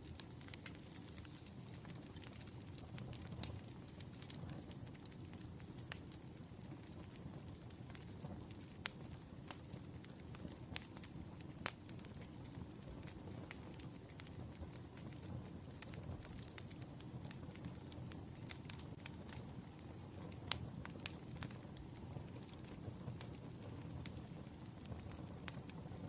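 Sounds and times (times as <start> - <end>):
firewood crackling and popping: 0.0 - 26.0
low rumble of flames: 0.0 - 26.0.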